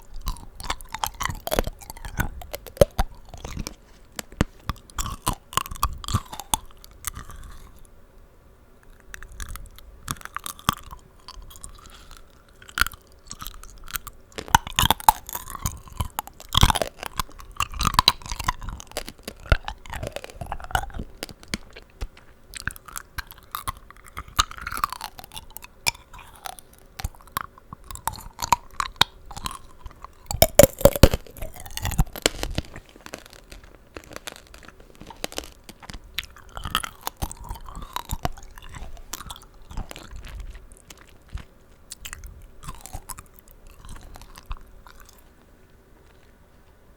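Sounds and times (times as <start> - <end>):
crunchy candy chewing: 0.0 - 8.0, 8.8 - 46.9.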